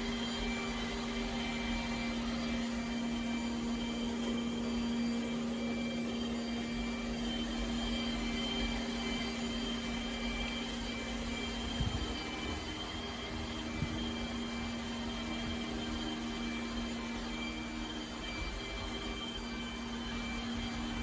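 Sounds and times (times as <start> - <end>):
robot vacuum running: 0.0 - 21.0.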